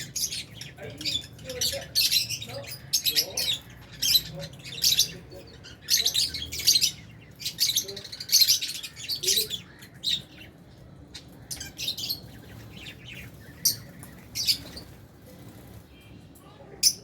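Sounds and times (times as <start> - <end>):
lovebirds chattering: 0.0 - 17.0.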